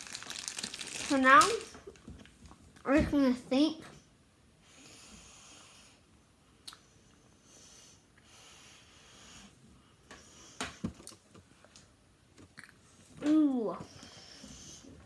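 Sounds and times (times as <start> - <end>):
faint breaths: 4.6 - 11.8, 13.8 - 15.0.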